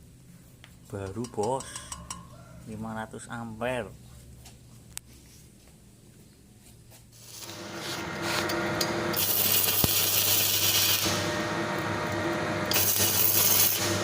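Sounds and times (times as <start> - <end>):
welding arc sizzling and crackling: 7.1 - 14.0
welding machine humming: 7.2 - 14.0.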